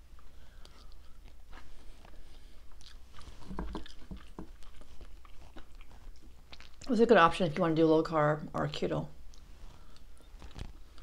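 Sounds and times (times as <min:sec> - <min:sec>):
chewing food: 0:00.1 - 0:07.2.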